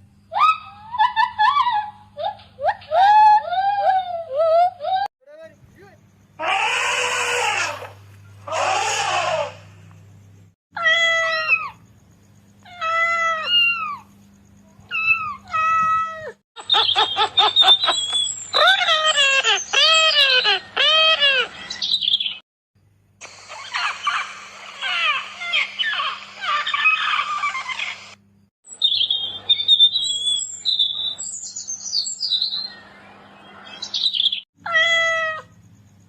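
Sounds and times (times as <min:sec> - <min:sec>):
pitched animal calls: 0:06.4 - 0:09.8, 0:14.8 - 0:22.4, 0:23.4 - 0:28.2
rough noisy animal calls: 0:06.4 - 0:09.9.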